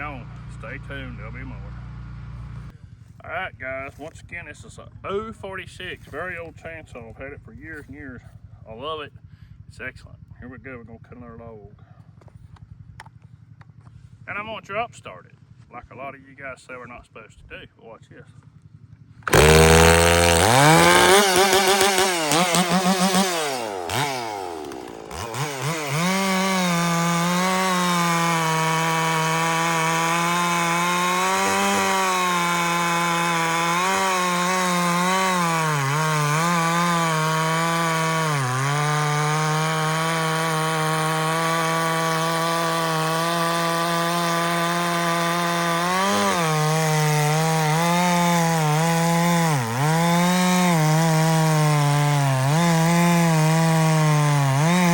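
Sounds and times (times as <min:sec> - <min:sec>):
chainsaw revving: 0:00.0 - 0:02.8, 0:18.5 - 0:54.9
chainsaw cutting through log: 0:00.0 - 0:03.0, 0:18.6 - 0:54.9.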